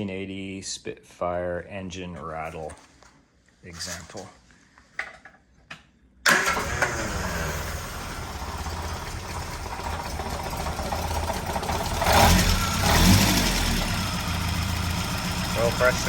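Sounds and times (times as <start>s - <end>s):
car engine idling: 6.3s - 16.0s.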